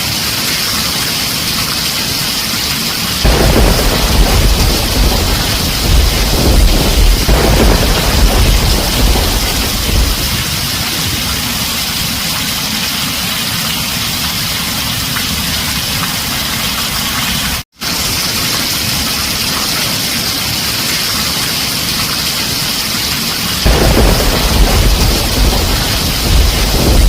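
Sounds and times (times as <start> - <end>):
rain on a tin roof: 0.0 - 27.0
thunder rumbling: 3.2 - 12.2, 23.6 - 27.0.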